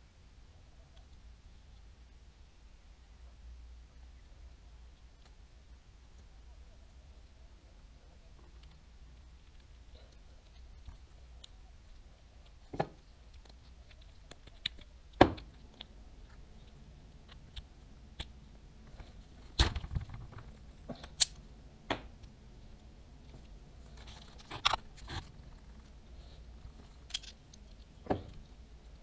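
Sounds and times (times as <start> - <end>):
small parts and tools clicking: 8.4 - 21.4, 26.6 - 29.0.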